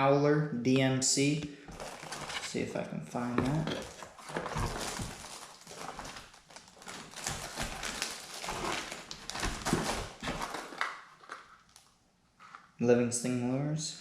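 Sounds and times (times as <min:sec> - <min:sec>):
plastic packages clacking: 0:01.7 - 0:02.4, 0:03.5 - 0:11.9
rustling: 0:01.7 - 0:02.6, 0:03.4 - 0:12.8.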